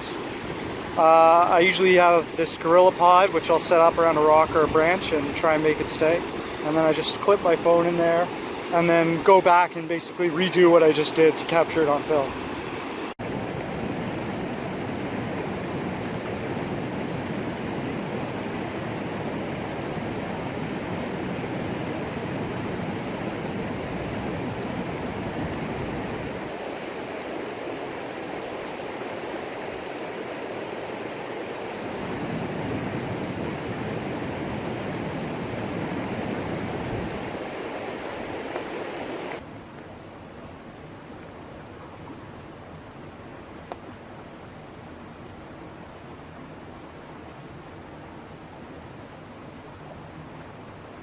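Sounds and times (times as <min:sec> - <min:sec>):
river water rushing over rocks: 0:00.0 - 0:51.0.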